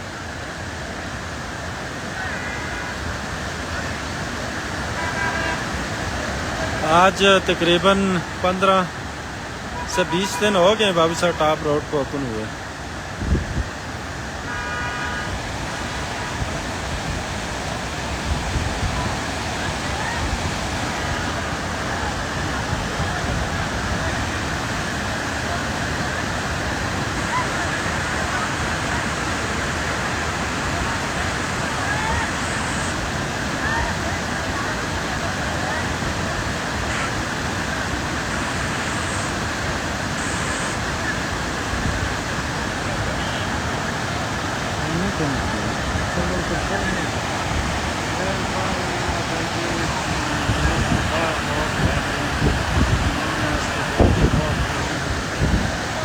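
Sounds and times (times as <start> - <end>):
waterfall rushing: 0.0 - 56.0
vehicle horn: 2.2 - 3.2, 4.9 - 5.9, 9.7 - 10.8, 14.4 - 15.4, 36.8 - 37.2, 43.1 - 43.6.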